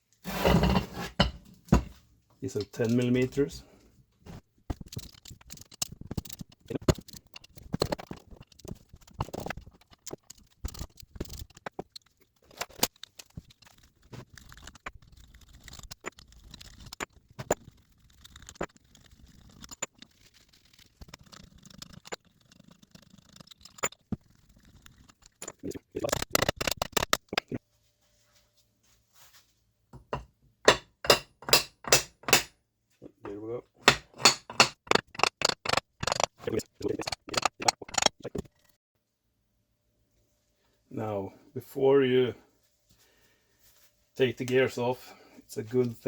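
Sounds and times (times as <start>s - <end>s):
hand tools clicking on metal: 30.7s - 32.5s, 33.8s - 38.5s.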